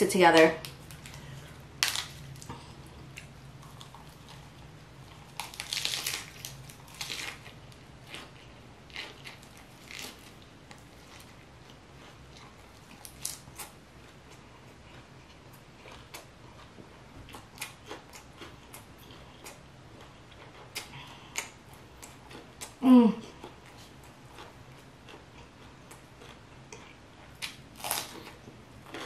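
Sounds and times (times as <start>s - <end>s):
crisp crunching bites: 1.8s - 2.5s, 5.2s - 8.3s, 27.4s - 29.0s
chewing: 2.0s - 29.0s.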